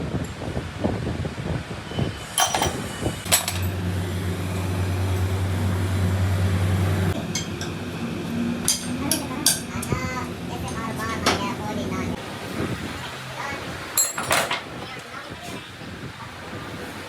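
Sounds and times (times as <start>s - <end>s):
motor humming: 1.9s - 12.2s
metal tools clinking: 2.4s - 3.8s, 14.0s - 14.6s.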